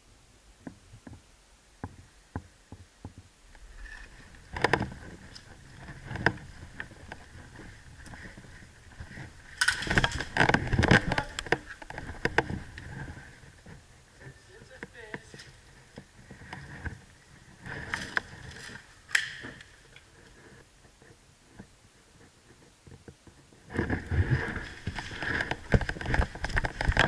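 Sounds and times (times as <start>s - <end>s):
rustling: 0.6s - 27.0s
sharp clicks: 19.1s - 19.7s.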